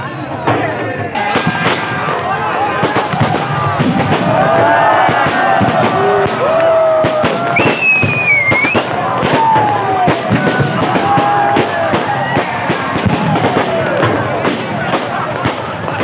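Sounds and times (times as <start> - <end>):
crowd voices: 0.0 - 16.0
fireworks banging and crackling: 0.0 - 16.0
music: 0.0 - 16.0
rising and falling whistle: 7.5 - 8.9.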